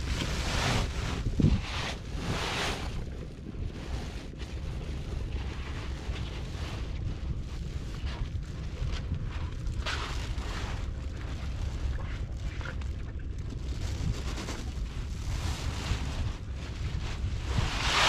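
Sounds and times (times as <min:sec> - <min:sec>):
wind buffeting the microphone: 0:00.0 - 0:18.0.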